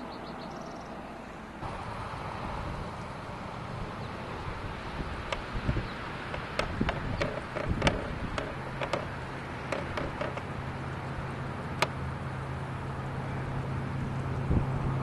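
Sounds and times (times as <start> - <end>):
outdoor background noise: 0.0 - 15.0
vehicle engine humming: 0.0 - 15.0
sharp clicks: 5.0 - 10.5.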